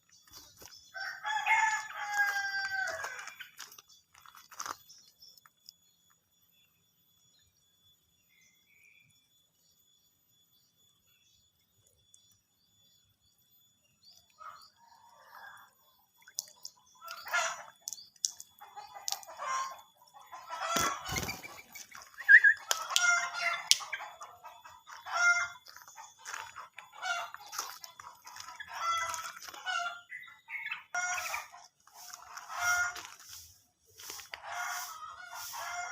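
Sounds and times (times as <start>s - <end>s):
bird calls: 16.2s - 33.4s.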